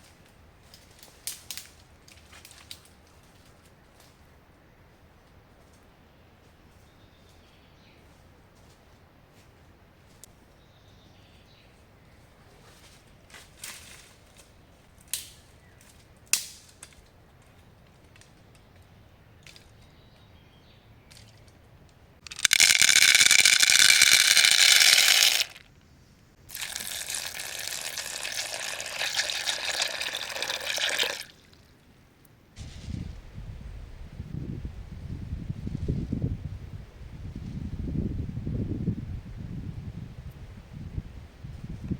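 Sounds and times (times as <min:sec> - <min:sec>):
water pouring into container: 0:22.3 - 0:25.6, 0:26.5 - 0:31.7.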